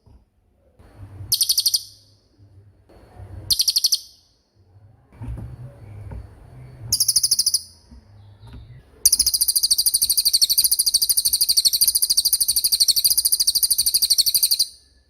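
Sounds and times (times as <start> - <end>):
bird trilling: 1.3 - 2.1, 3.5 - 4.3, 6.9 - 7.9, 9.0 - 14.9.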